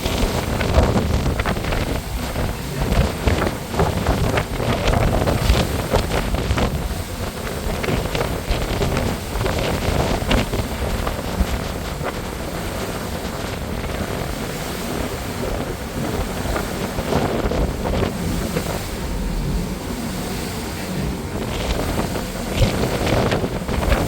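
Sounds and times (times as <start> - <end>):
water rushing: 0.0 - 24.0
wind buffeting microphone: 0.0 - 24.0
low rumble: 15.4 - 24.0.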